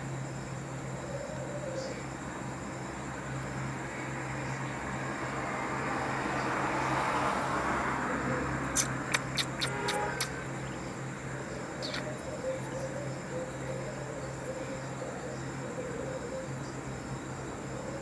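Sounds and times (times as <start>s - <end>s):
budgerigars chirping sharply: 8.8s - 10.3s, 11.8s - 12.3s.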